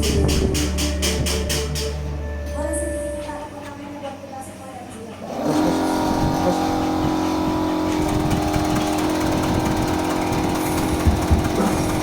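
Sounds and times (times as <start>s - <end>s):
slicing machine humming: 5.3s - 12.0s
whirring rattling blade disc: 5.3s - 12.0s.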